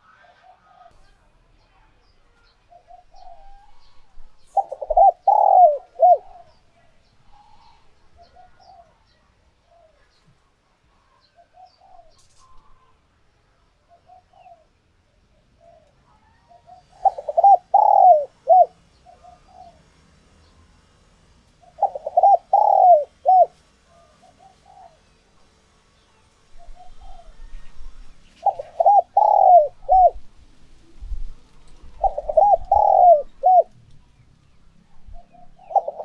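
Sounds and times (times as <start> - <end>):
dove cooing: 2.7 - 6.6, 15.6 - 19.8, 21.6 - 25.1, 26.6 - 30.4, 31.2 - 33.8, 35.1 - 36.0.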